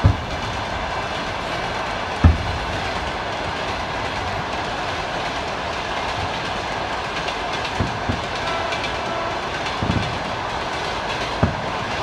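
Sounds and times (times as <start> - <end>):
distant fireworks thumps: 0.0 - 1.0, 2.2 - 3.2, 7.7 - 8.9, 9.6 - 10.2, 11.3 - 11.9
train passing on tracks: 0.0 - 12.0.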